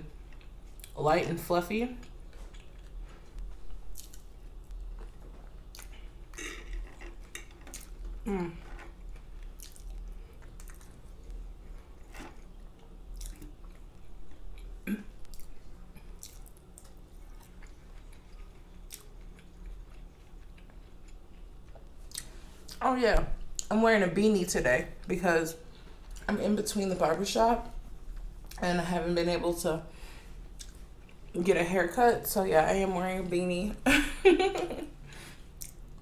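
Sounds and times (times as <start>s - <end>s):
chewing and mouth smacking: 2.0s - 22.8s, 30.5s - 31.3s, 35.6s - 36.0s.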